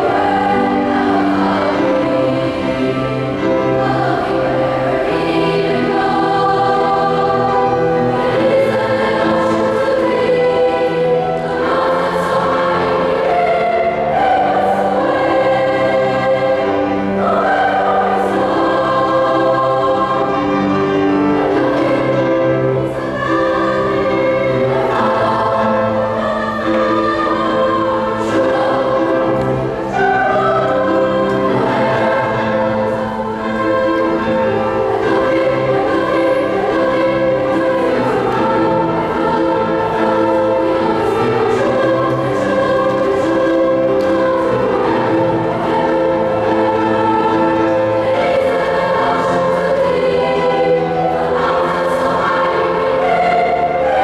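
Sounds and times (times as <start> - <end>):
choir singing in harmony: 0.0 - 54.0.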